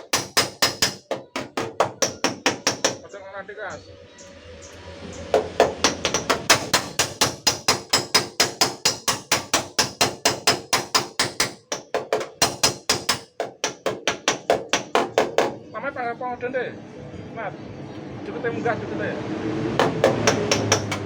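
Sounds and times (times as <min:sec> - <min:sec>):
hammer tapping on sheet metal: 0:00.0 - 0:03.0, 0:05.3 - 0:15.7, 0:19.8 - 0:21.0.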